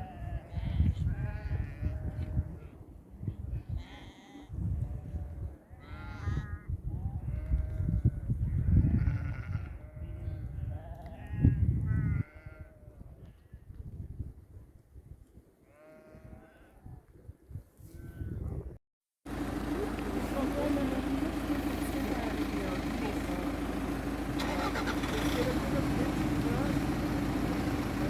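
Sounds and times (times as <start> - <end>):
sheep bleating: 0.0 - 2.7, 3.6 - 13.0, 15.7 - 16.8.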